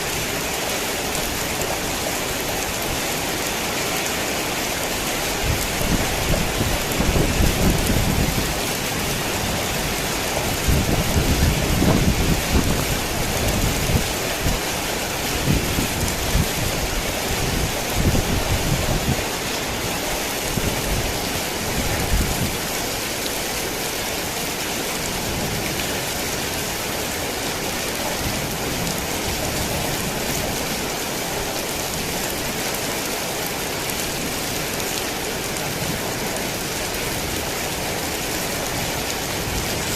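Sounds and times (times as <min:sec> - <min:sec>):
heavy rain: 0:00.0 - 0:39.9
low rolling thunder: 0:05.5 - 0:08.6, 0:09.2 - 0:14.6.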